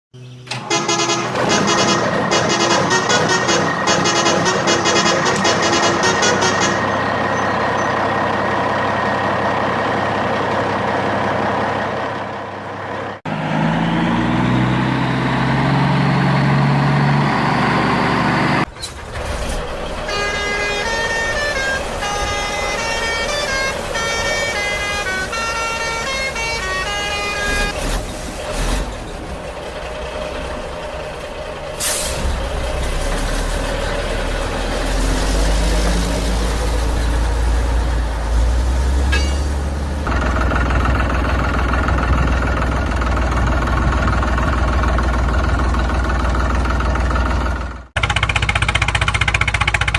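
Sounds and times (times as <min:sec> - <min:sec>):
truck engine running: 0:00.2 - 0:49.9
truck horn toots: 0:00.5 - 0:08.0, 0:19.8 - 0:28.0, 0:39.0 - 0:40.2
engine with rising whine: 0:06.0 - 0:20.0.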